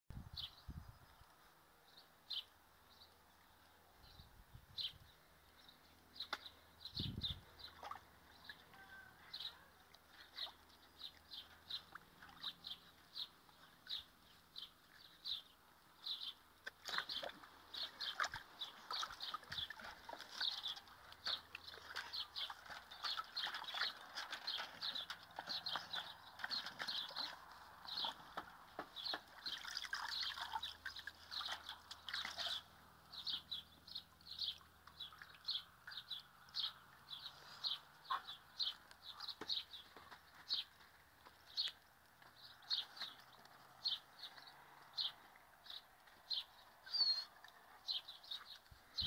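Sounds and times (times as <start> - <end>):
water splashing in metal tub: 7.6 - 8.7, 16.7 - 28.4, 29.0 - 32.7
small bird chirping: 43.8 - 49.0.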